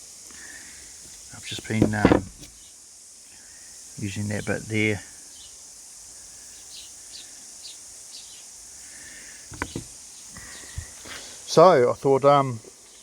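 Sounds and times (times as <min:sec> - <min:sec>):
steady high hiss: 0:00.0 - 0:13.0
brief knocks: 0:01.7 - 0:02.5, 0:09.5 - 0:09.9.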